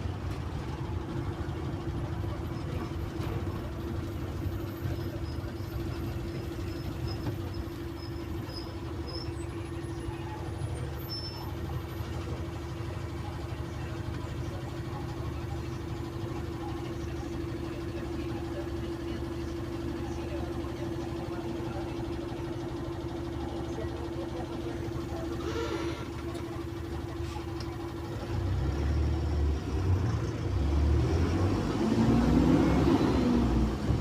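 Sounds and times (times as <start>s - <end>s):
bus diesel engine running: 0.0s - 34.0s.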